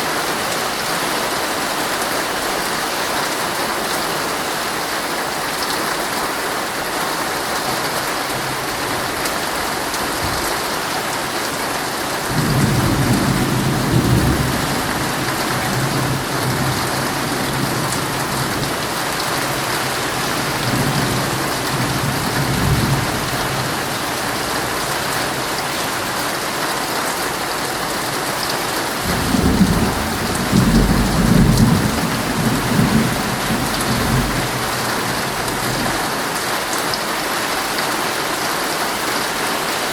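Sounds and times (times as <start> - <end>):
heavy rain on a tent: 0.0 - 39.9
low thunder rumbles: 29.0 - 36.0.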